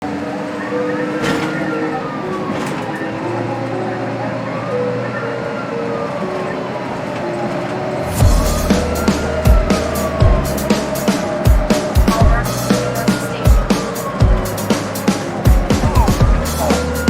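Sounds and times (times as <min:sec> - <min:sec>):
warning siren wailing: 0:00.0 - 0:17.0
heavy drum-like thumps: 0:08.2 - 0:17.0.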